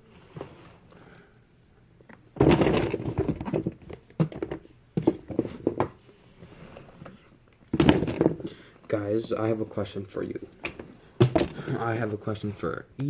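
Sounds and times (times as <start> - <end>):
plastic toys clattering together: 2.4 - 5.9, 7.7 - 8.5.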